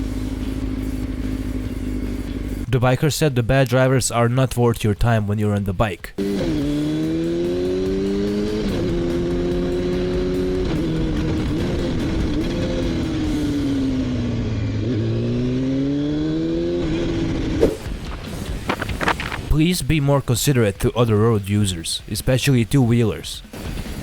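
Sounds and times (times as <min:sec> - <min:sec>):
motorcycle engine shifting gears: 0:00.0 - 0:02.7, 0:06.2 - 0:19.5.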